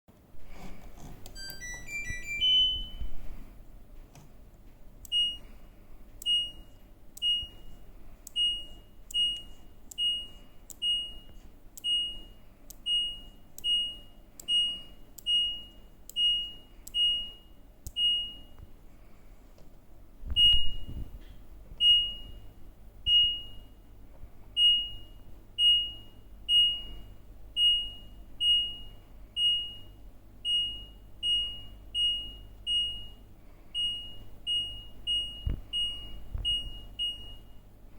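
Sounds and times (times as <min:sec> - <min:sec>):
rising chime: 0:01.4 - 0:03.1
short beeps: 0:01.4 - 0:03.1.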